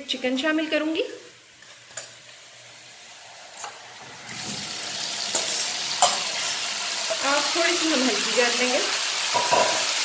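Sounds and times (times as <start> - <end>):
chicken sizzling in hot oil: 2.1 - 10.0.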